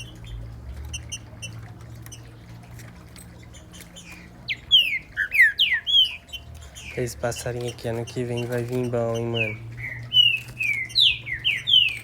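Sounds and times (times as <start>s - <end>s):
bird whistled song: 3.4s - 12.0s.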